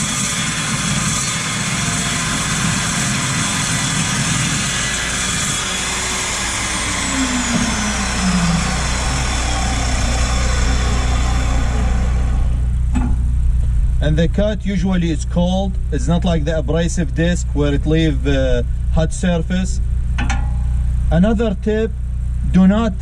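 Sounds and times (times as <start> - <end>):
chop saw cutting metal: 0.0 - 12.6
saw motor winding down: 0.0 - 12.9
steady low hum: 0.0 - 23.0.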